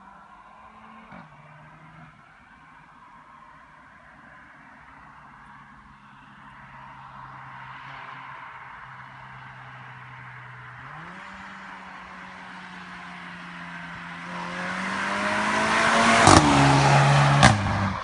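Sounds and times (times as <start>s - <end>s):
car engine revving: 14.0s - 18.0s.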